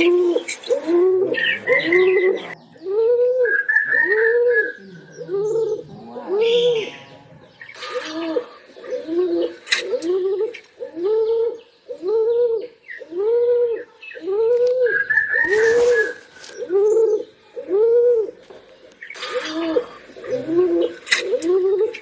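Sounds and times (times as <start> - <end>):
pigeon cooing: 0.0 - 22.0.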